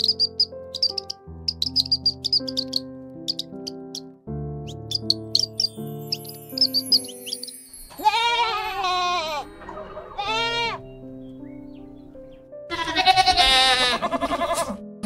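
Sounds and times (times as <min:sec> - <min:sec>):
soft background music: 0:00.0 - 0:15.0
goats bleating: 0:07.9 - 0:10.8, 0:12.7 - 0:14.8.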